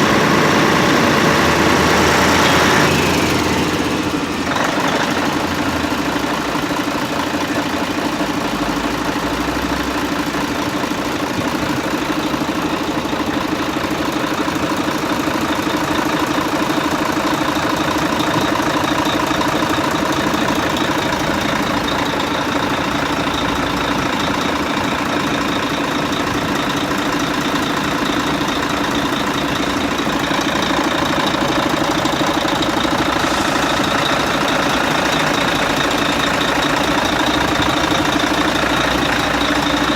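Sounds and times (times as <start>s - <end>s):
fire truck engine humming: 0.0s - 39.9s
high thin whine: 31.5s - 36.2s.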